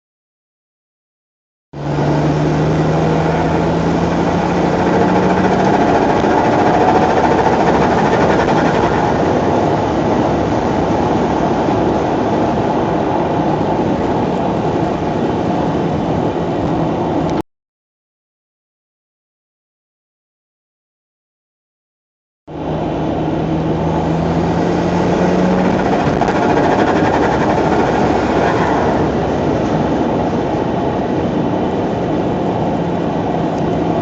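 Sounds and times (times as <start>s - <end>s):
turbocharged engine running: 1.8s - 17.4s, 22.5s - 34.0s
fluttering compressor surge chatter: 4.6s - 10.0s, 25.1s - 29.4s.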